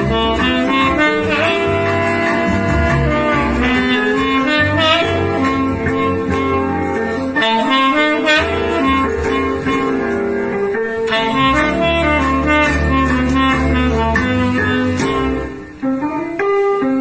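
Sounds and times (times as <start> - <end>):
bass line: 0.0 - 16.2
jazz saxophone melody: 0.0 - 17.0.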